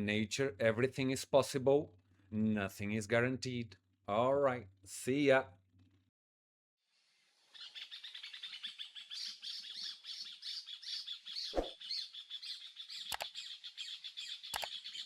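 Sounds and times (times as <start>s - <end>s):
small birds chirping: 7.5s - 15.0s
sharp clicks: 13.1s - 13.3s, 14.5s - 14.8s.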